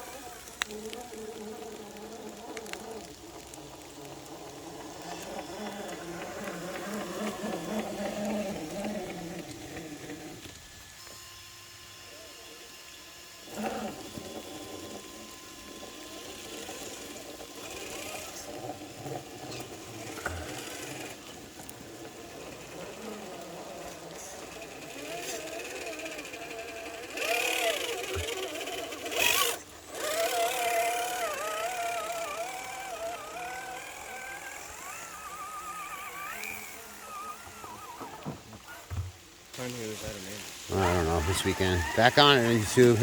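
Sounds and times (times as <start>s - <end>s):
rc car motor whining: 0.0s - 43.0s.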